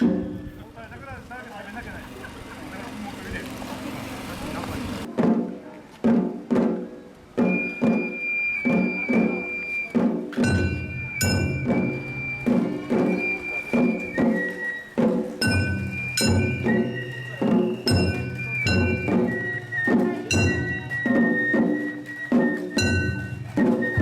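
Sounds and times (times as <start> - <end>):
taiko drum beating: 5.1 - 24.0
bamboo flute high notes: 7.4 - 24.0.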